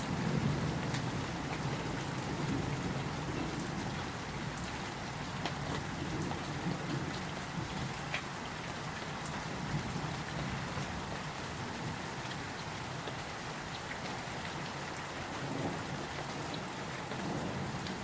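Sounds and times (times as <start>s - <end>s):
raindrop ticks: 0.8s - 8.3s.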